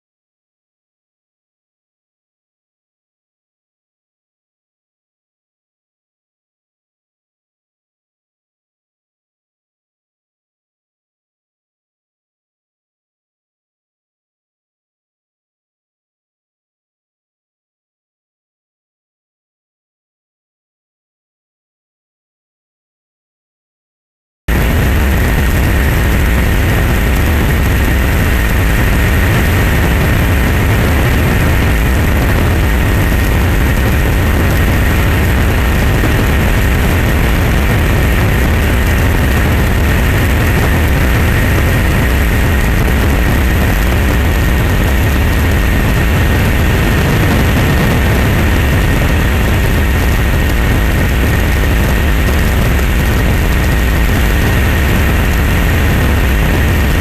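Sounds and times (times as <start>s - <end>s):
loud engine drone: 24.5s - 57.0s.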